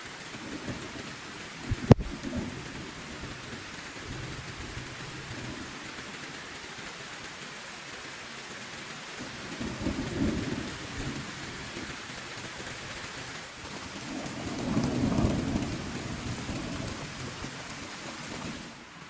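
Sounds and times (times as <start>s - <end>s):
heavy rain: 0.0s - 19.0s
thunder rolling: 1.6s - 5.8s, 9.3s - 18.8s.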